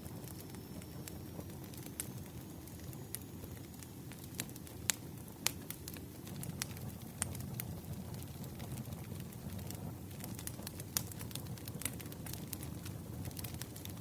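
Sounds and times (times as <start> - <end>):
fire crackles and pops: 0.0 - 14.0
firewood burning rumble: 0.0 - 14.0.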